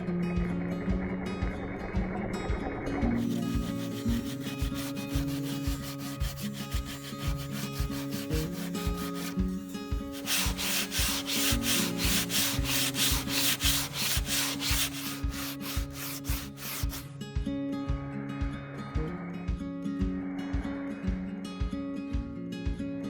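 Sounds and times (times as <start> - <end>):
background music with steady beat: 0.0 - 23.0
sanding strokes on wood: 3.2 - 17.0.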